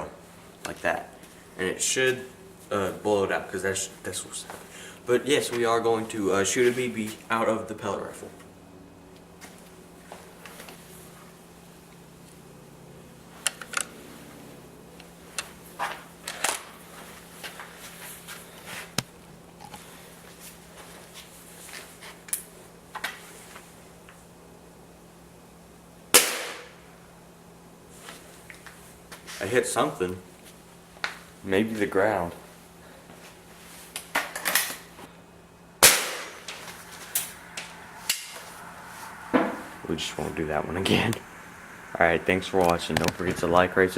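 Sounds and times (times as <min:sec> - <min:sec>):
air rifle shot: 0:26.2 - 0:26.8, 0:35.8 - 0:36.6.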